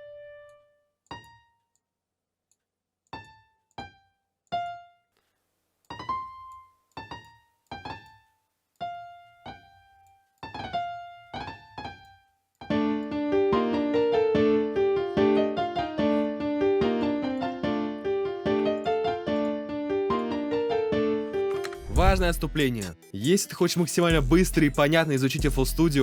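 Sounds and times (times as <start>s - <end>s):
piano-like keyboard single notes: 3.2s - 5.0s, 5.9s - 21.8s
looping melody with chords: 12.7s - 26.0s.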